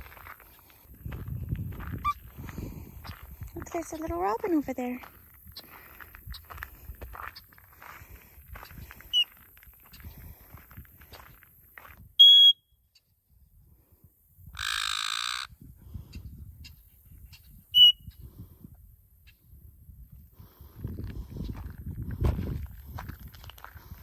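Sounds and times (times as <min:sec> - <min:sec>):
parrot piercing whistles: 0:12.2 - 0:12.6, 0:17.8 - 0:18.1
parrot harsh rasping call: 0:14.6 - 0:15.5.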